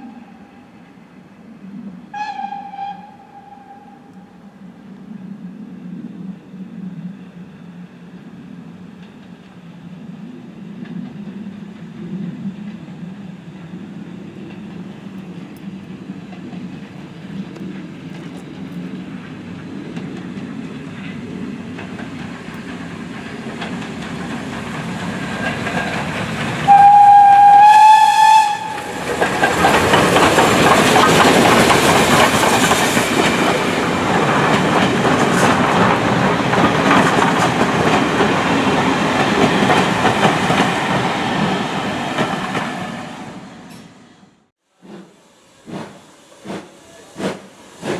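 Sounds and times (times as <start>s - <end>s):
steam train passing: 0.0s - 47.9s
train whistle: 2.1s - 4.4s, 26.7s - 29.1s
wheels clacking over rail joints: 13.6s - 27.0s, 28.6s - 42.9s.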